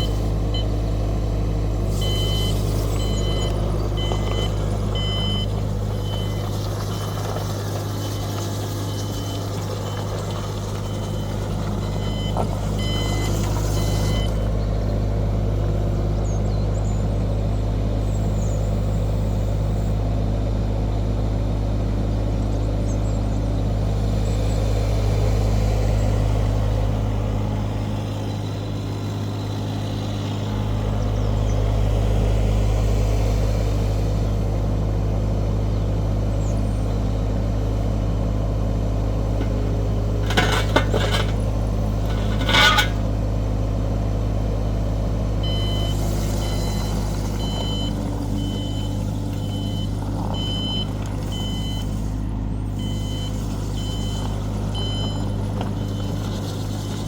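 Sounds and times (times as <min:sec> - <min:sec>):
excavator diesel engine running: 0:00.0 - 0:57.0
alarm beeping: 0:01.9 - 0:06.4
loud metallic clatters: 0:40.2 - 0:43.1.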